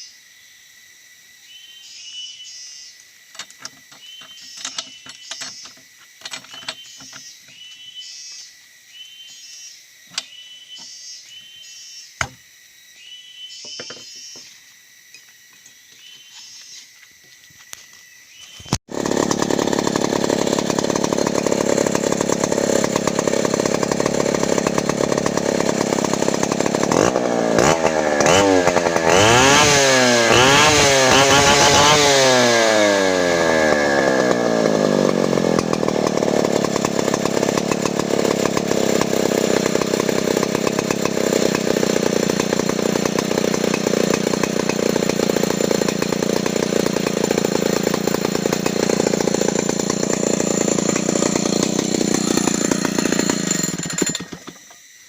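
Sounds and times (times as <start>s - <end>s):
chainsaw engine idling and revving: 18.7s - 54.8s.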